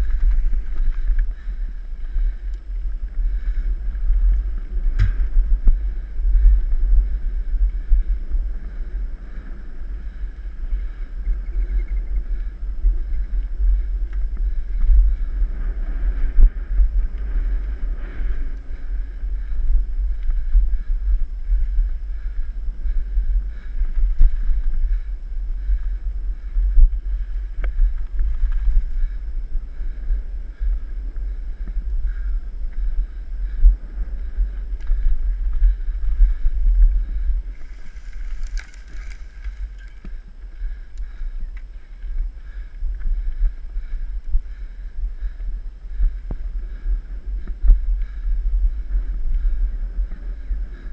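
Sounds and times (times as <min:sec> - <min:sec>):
faint clicks from trail: 0:00.0 - 0:50.9
wind buffeting microphone: 0:00.0 - 0:50.9.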